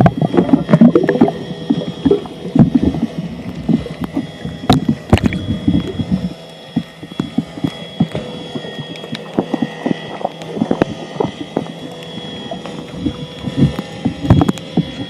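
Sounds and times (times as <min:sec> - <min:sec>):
faint high whine: 0:00.0 - 0:15.0
water sloshing and splashing: 0:00.0 - 0:15.0.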